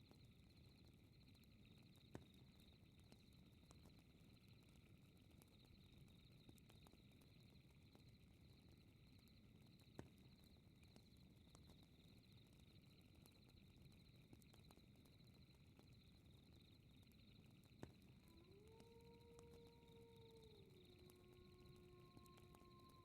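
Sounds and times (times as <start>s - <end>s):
crickets chirping: 12.3s - 23.0s
fireplace crackling: 18.2s - 23.0s.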